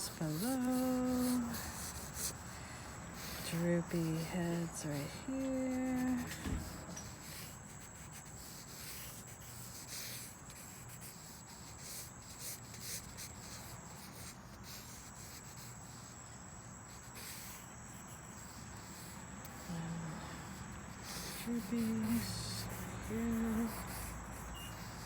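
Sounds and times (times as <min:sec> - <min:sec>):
crickets and cicadas droning: 0:00.0 - 0:25.0
pencil sketching on paper: 0:00.0 - 0:25.0.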